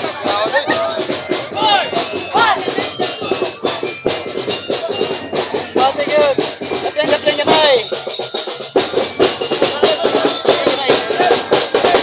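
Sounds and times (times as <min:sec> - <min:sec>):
street-dance music with drums: 0:00.0 - 0:12.0
voices calling out: 0:00.0 - 0:12.0.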